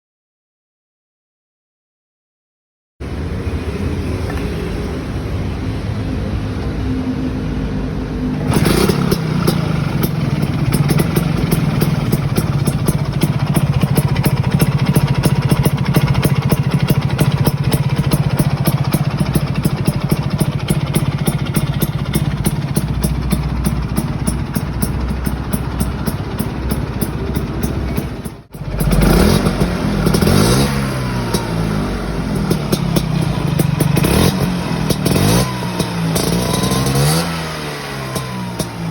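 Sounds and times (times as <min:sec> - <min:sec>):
scooter engine running and revving: 0:08.3 - 0:38.9.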